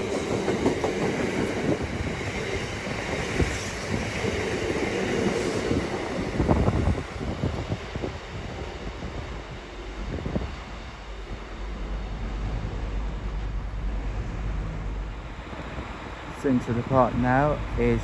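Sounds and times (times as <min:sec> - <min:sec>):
freight train wheels clattering: 0:00.0 - 0:06.4.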